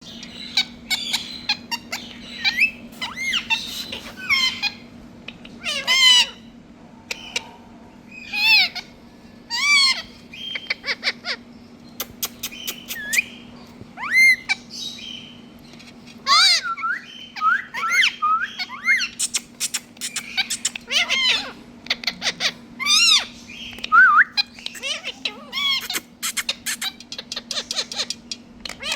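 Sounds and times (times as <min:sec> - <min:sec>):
parrots squawking: 0:00.1 - 0:06.5, 0:07.1 - 0:15.4, 0:16.2 - 0:28.9
parrot clicks and chirps: 0:11.9 - 0:13.3, 0:19.1 - 0:21.1, 0:25.7 - 0:28.9.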